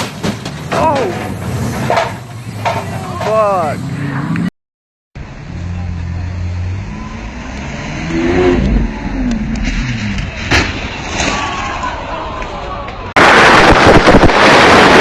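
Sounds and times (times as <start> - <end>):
car engine revving: 5.2 - 10.5.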